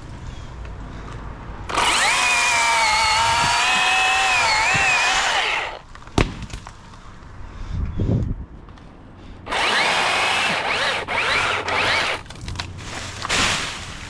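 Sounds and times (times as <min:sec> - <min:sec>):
chainsaw running: 0:01.7 - 0:05.8, 0:09.5 - 0:12.3.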